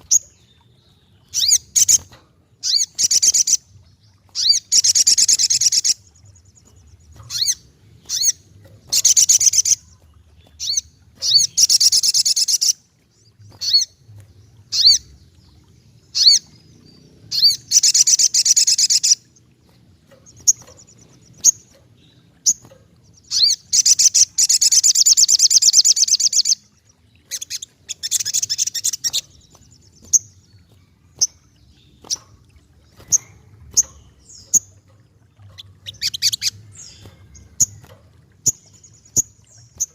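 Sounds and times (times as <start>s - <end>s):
bird chirps: 0.0s - 39.9s
bird trilling: 7.2s - 9.8s, 10.6s - 12.8s, 16.1s - 16.5s, 17.3s - 19.3s, 22.4s - 26.6s.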